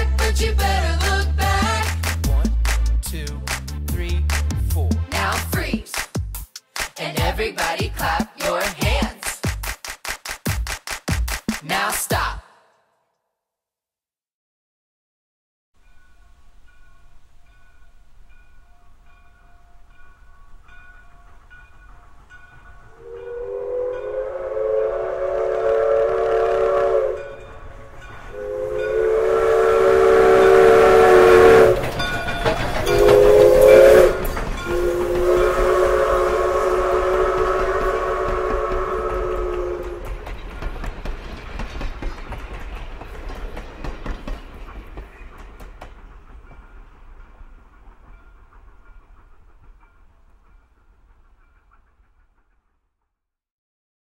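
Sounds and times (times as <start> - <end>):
train rushing and clattering: 0.0 - 12.4, 15.8 - 53.1
train whistle blasts: 22.9 - 31.9, 32.9 - 40.2.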